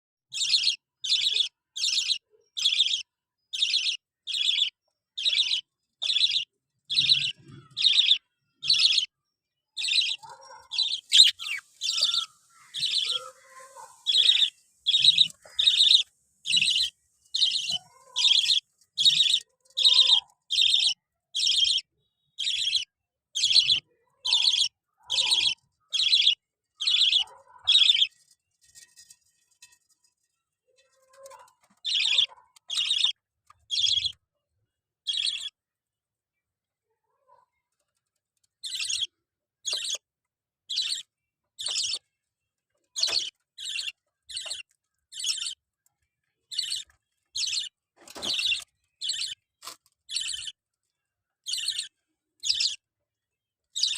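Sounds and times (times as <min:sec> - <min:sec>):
parrot shrill chirps: 0:09.8 - 0:28.1.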